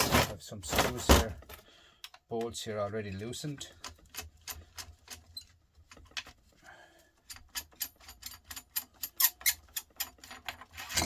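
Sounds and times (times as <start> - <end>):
metallic clicks of bolts: 7.3 - 11.0.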